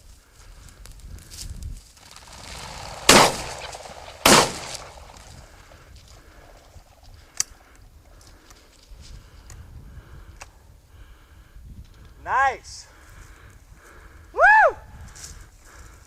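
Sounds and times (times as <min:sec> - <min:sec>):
shotgun shots: 0:02.4 - 0:05.2.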